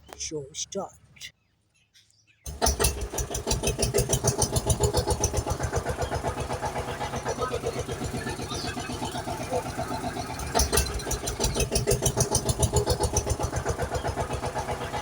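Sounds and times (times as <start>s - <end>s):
tractor engine chugging: 2.5s - 15.0s.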